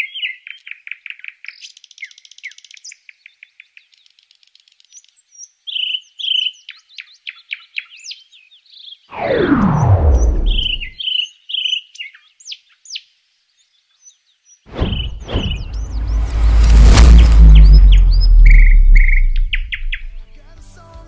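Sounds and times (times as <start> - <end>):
songbirds singing: 0.0 - 9.1, 11.0 - 14.6
whooshing sweep falling to rumble: 9.1 - 11.0, 14.7 - 20.3.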